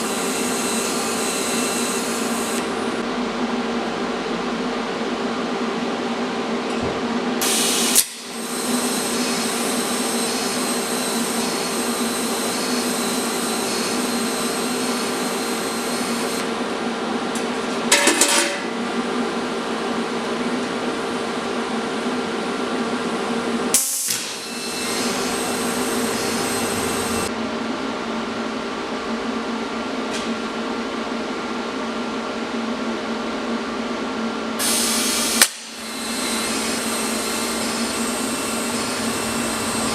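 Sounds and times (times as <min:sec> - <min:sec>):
electric grinder whining: 0:24.4 - 0:27.3, 0:35.1 - 0:39.9.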